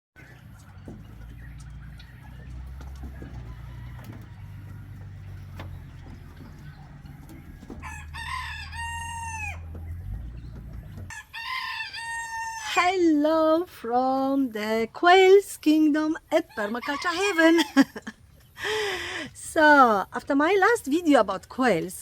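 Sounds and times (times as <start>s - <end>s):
steady low rumble: 0.2s - 11.1s
rooster crowing: 0.7s - 12.8s.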